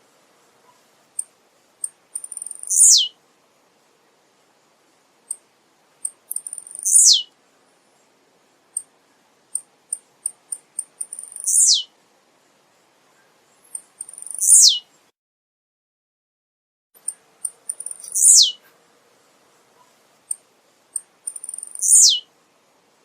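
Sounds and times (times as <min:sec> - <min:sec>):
bird song with downward sweep: 0:02.3 - 0:03.2, 0:06.6 - 0:07.3, 0:11.1 - 0:11.9, 0:14.1 - 0:14.9, 0:17.8 - 0:18.6, 0:21.4 - 0:22.3.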